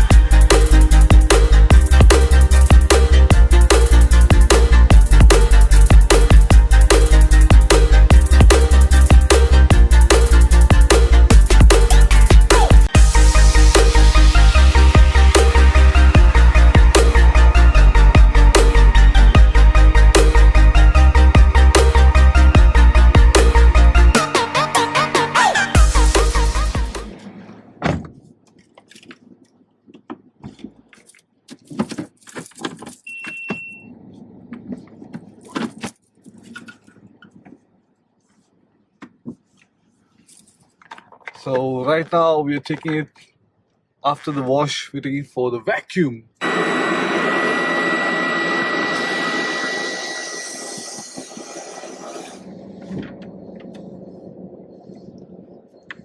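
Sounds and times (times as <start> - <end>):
vacuum cleaner whining: 46.4 - 54.0
low rumble: 50.9 - 56.0.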